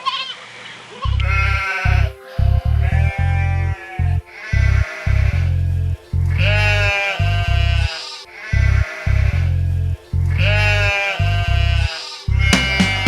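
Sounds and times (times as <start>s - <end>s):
sheep bleating: 1.0s - 5.4s, 6.3s - 9.5s, 10.3s - 12.9s
upbeat children's music: 1.2s - 13.0s.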